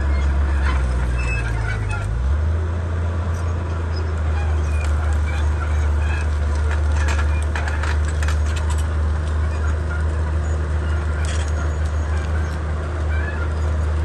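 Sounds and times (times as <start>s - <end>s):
bulldozer diesel engine droning: 0.0s - 14.0s
sharp clicks and cracks: 4.8s - 13.1s.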